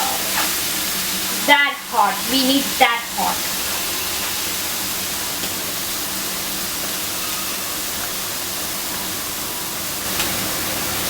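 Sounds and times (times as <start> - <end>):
chicken sizzling in a skillet: 0.0 - 11.0.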